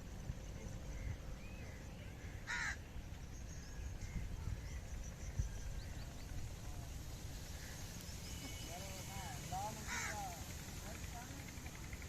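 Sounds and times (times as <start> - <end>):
faint bird chirps: 0.0 - 10.4
bird call: 7.5 - 10.5.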